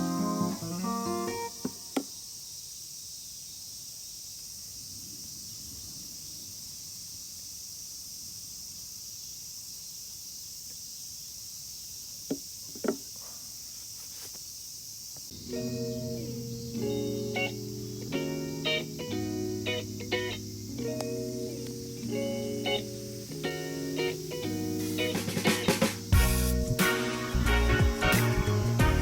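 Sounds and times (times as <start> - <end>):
high-pitched insect hiss: 0.0 - 29.0.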